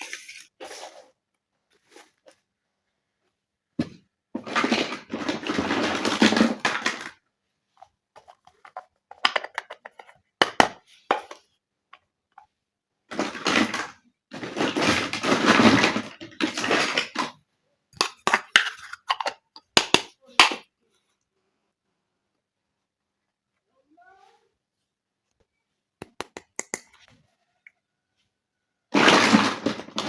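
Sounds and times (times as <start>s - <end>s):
plastic toy pieces rustling and rattling: 4.4s - 7.2s, 13.1s - 17.4s, 29.0s - 30.0s.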